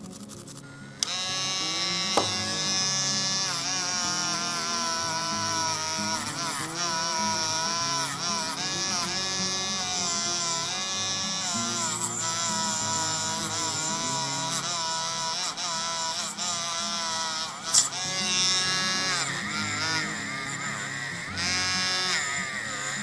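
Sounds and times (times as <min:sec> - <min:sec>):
sliding melody over low chords: 0:00.6 - 0:16.0.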